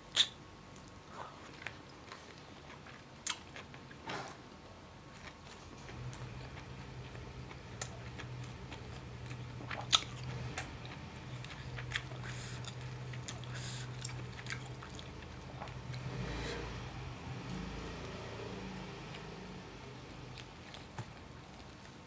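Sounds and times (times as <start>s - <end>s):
low steady hum: 4.6s - 22.0s
wet chewing and biting: 7.7s - 16.1s.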